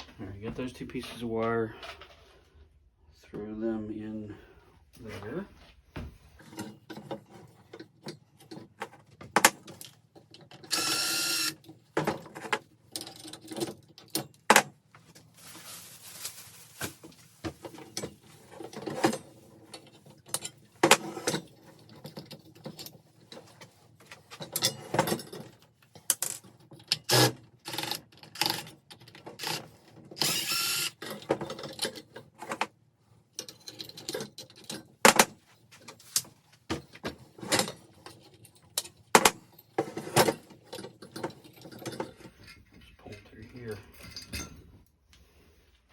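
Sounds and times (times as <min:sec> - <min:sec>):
tools clicking and clanking on metal: 0:06.4 - 0:14.7, 0:17.6 - 0:30.4, 0:31.0 - 0:44.8.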